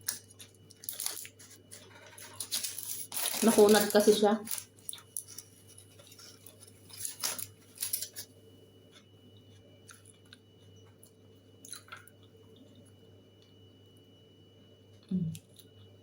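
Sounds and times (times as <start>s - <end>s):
person chewing food: 0.0s - 2.4s, 4.7s - 6.9s, 8.8s - 13.6s
low steady hum: 0.0s - 16.0s.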